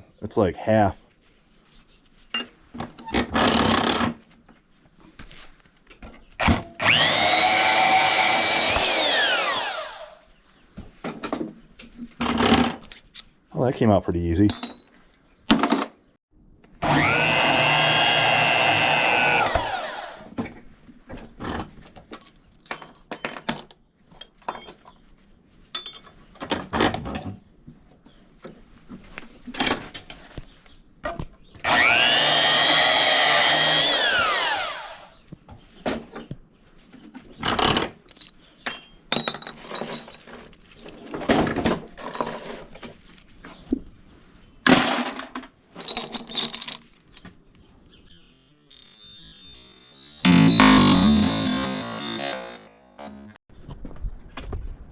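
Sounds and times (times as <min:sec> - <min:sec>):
bandsaw cutting copper tubes: 0:06.4 - 0:10.2, 0:16.8 - 0:20.4, 0:31.6 - 0:35.2, 0:48.1 - 0:53.4
metal pieces clinking and clattering: 0:21.9 - 0:23.8, 0:38.1 - 0:41.2, 0:45.8 - 0:47.3.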